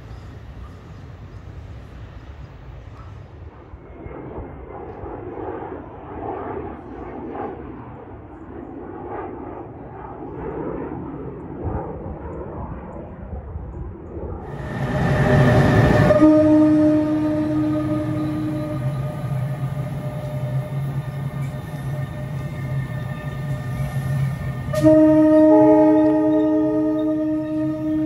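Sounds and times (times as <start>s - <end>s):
jet taking off: 4.0s - 25.1s.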